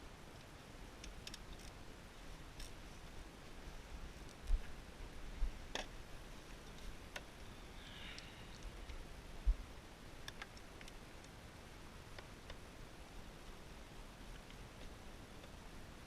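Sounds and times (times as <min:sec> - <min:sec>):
brief scrape: 0:07.6 - 0:08.6.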